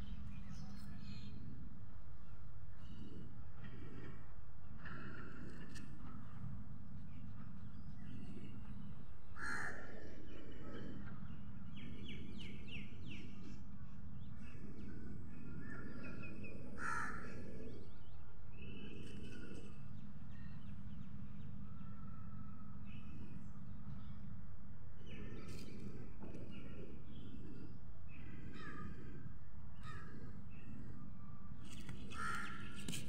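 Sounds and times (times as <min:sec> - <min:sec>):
low outdoor hum and rumble: 0:00.0 - 0:33.0
loud bird calls: 0:26.5 - 0:29.2, 0:29.8 - 0:30.9.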